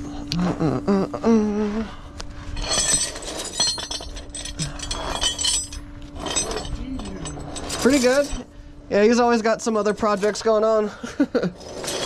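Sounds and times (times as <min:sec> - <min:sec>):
low hum: 0:00.0 - 0:12.0
small metal objects clinking: 0:02.6 - 0:08.5, 0:11.6 - 0:12.0.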